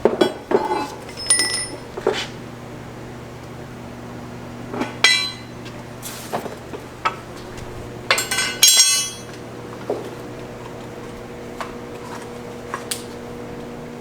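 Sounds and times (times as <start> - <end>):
metal tools clinking: 0.7 - 2.0, 8.1 - 9.4.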